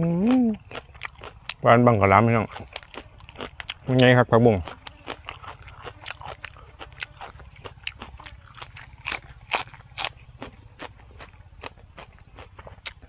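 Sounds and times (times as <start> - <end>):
crunchy chewing: 0.0 - 13.0
low hum: 4.7 - 13.0.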